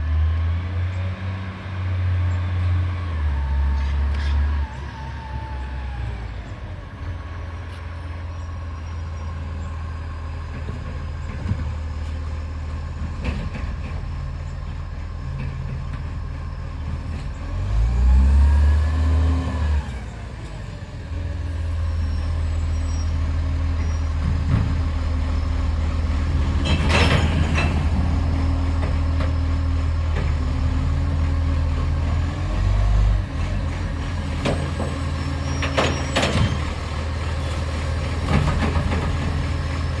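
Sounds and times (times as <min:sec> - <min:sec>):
diesel truck engine running: 0:00.0 - 0:40.0.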